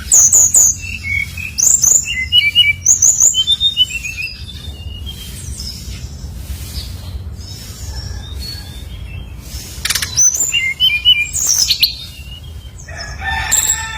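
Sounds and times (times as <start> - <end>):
bird singing high whistled notes: 0.0 - 6.1, 8.2 - 12.8.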